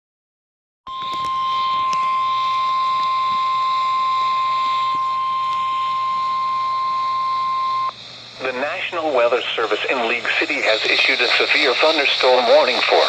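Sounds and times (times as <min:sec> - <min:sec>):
high-pitched warning tone: 0:00.9 - 0:09.0, 0:09.8 - 0:13.0
faint hiss: 0:07.9 - 0:13.0.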